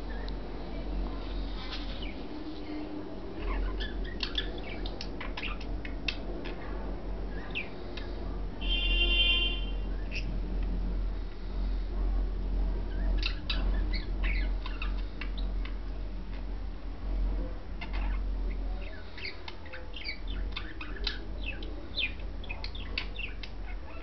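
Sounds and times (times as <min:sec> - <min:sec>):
budgerigars chirping and chattering: 0:01.7 - 0:02.2, 0:03.4 - 0:06.6, 0:07.3 - 0:08.2, 0:10.0 - 0:10.3, 0:12.9 - 0:16.4, 0:17.8 - 0:24.0.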